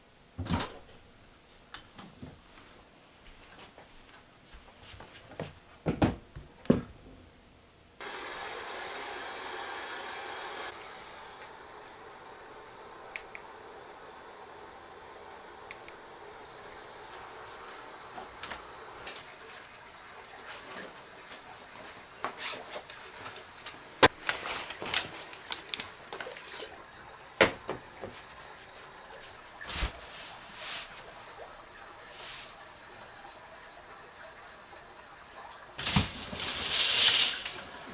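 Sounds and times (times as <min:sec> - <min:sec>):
steady hiss: 0:08.0 - 0:37.9
knocks and clatters: 0:35.8 - 0:37.9.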